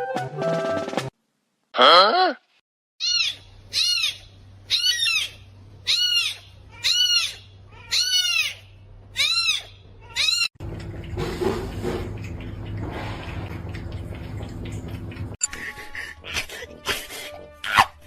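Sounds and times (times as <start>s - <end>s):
cat meowing: 5.9s - 8.6s, 9.2s - 10.5s.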